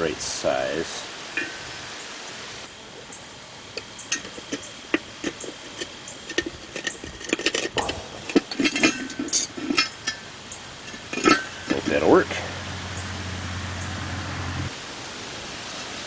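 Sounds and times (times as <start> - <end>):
clicks of metal and rubber parts: 3.8 - 10.3, 10.9 - 12.0.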